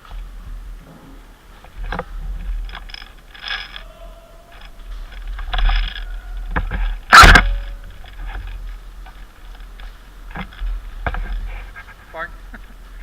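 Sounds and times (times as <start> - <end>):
faint clicks and knocks: 0.0 - 13.0
loud sharp bang: 7.0 - 8.1.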